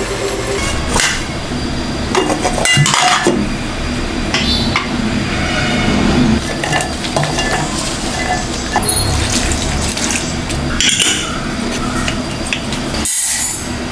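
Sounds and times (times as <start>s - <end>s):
steady low hum: 0.0s - 13.0s
dishes and utensils clinking: 6.4s - 13.0s.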